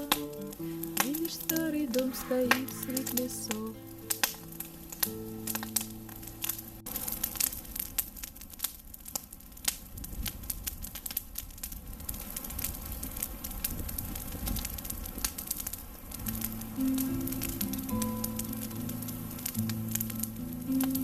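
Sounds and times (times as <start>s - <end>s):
guitar and voice note: 0.0s - 7.1s
campfire crackling and popping: 0.0s - 21.0s.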